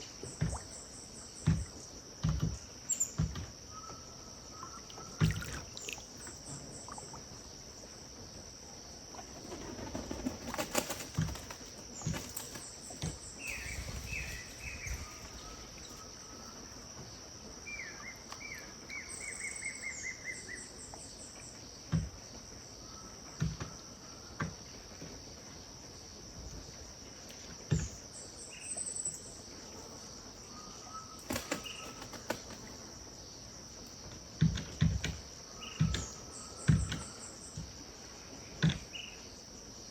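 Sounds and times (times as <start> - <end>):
birds calling: 0.0 - 8.0, 9.2 - 21.5, 27.7 - 33.0
high insect drone: 0.0 - 39.9.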